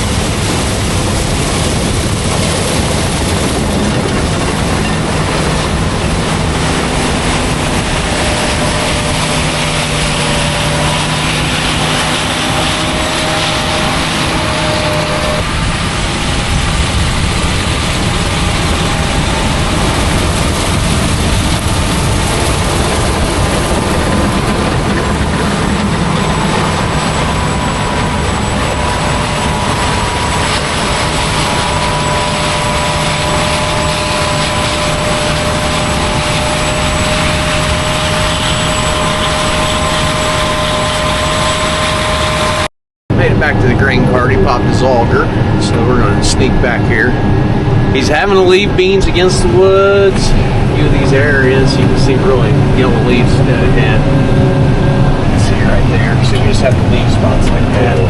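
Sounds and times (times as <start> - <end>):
harvest machinery droning: 0.0 - 58.0.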